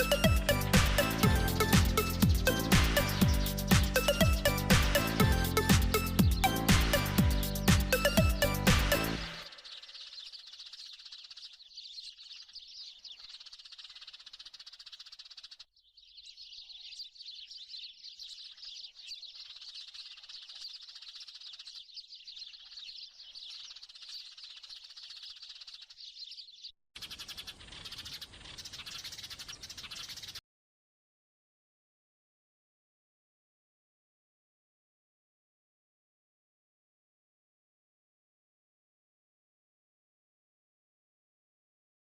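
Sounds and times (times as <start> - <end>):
small birds chirping: 0.0 - 30.4.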